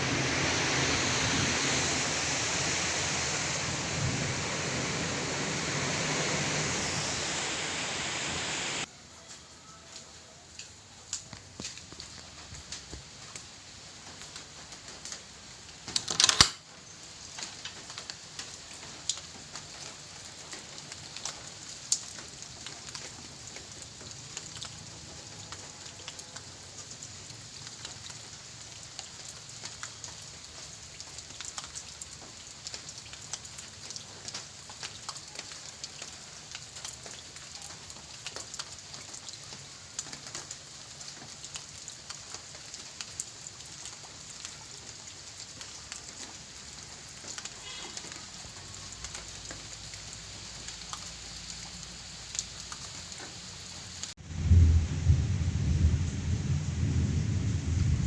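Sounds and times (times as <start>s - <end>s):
sudden loud burst: 0.0s - 8.9s
steady rain falling: 0.0s - 58.0s.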